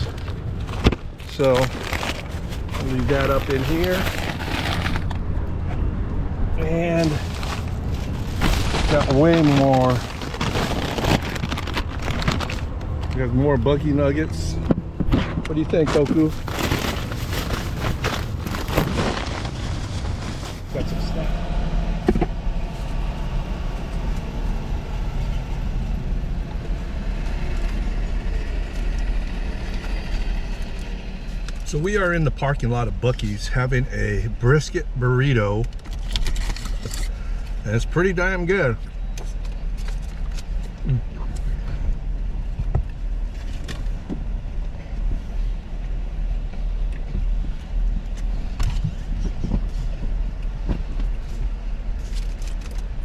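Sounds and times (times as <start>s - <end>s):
vehicle rumble: 0.0s - 53.0s
truck engine idling: 20.5s - 31.6s.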